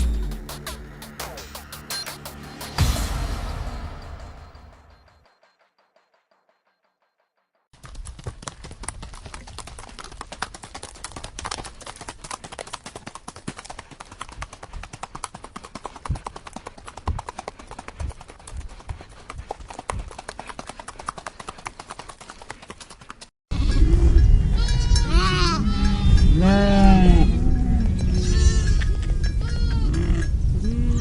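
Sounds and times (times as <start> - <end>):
horse hooves clopping: 7.8 - 23.3.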